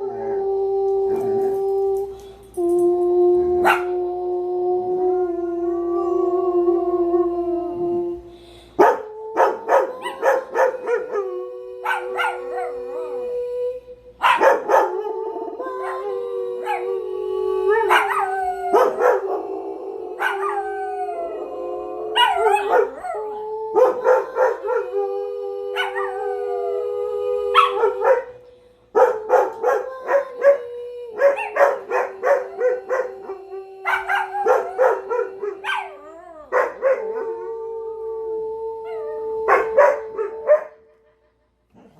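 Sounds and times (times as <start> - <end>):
dogs howling: 8.8 - 28.4, 29.0 - 41.1.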